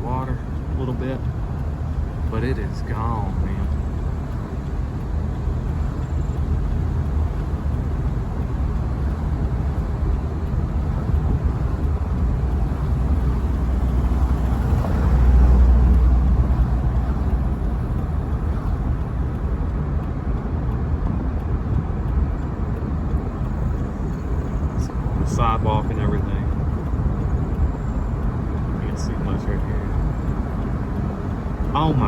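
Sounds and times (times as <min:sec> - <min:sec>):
deep low rumble: 0:00.0 - 0:32.0
floodwater rushing: 0:05.4 - 0:19.6, 0:22.4 - 0:32.0.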